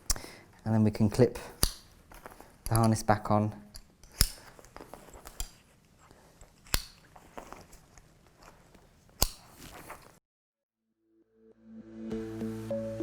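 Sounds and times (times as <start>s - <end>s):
fabric and strap handling: 1.0s - 10.2s
harness buckle clips snapping shut: 1.5s - 3.0s, 3.7s - 5.6s, 6.6s - 7.6s, 9.2s - 9.9s.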